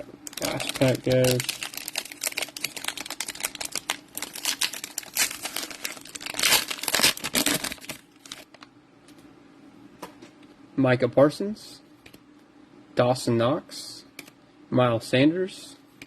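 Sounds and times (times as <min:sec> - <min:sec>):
card pack wrapper tearing: 0:00.3 - 0:08.5.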